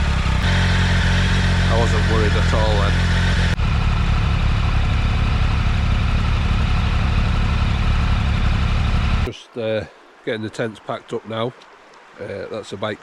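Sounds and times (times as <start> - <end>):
motorcycle engine idling: 0.0 - 9.3.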